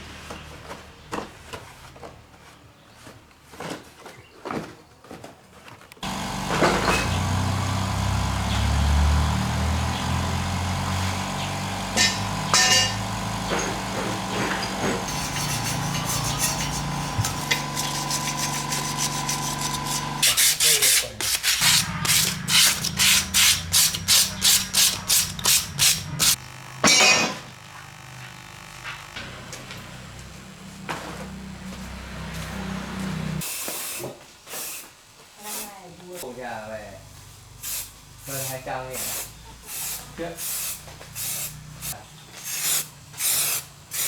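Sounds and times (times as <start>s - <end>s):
motorbike engine running: 6.0s - 20.2s, 21.6s - 33.4s.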